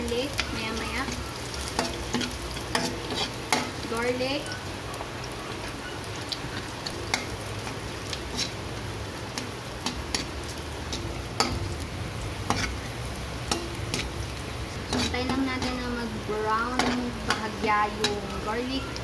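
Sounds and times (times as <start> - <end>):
onion sizzling in hot oil: 0.0 - 19.0
metal ladle scraping wok: 7.1 - 8.6, 12.4 - 14.2, 14.8 - 15.9.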